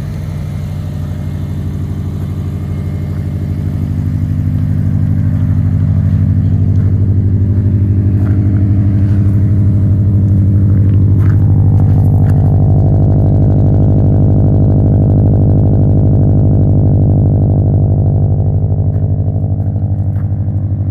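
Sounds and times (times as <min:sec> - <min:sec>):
engine idling: 0:00.0 - 0:20.9.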